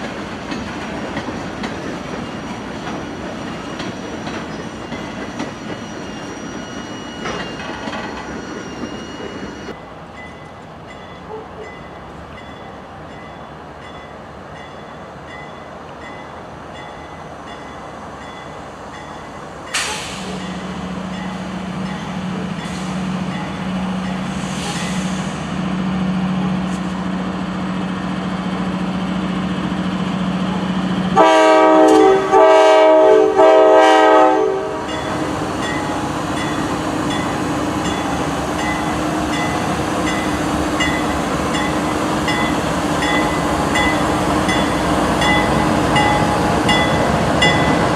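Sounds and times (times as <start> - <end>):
diesel locomotive engine drone: 0.0 - 47.9
locomotive air horn blasts: 31.2 - 35.0.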